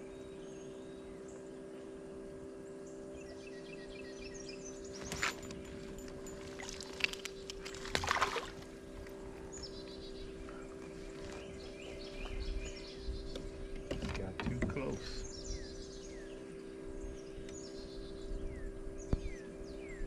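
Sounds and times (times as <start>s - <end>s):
birds chirping: 0.0s - 20.0s
boat engine hum: 0.0s - 20.0s
rushing splashy noises: 7.8s - 8.6s.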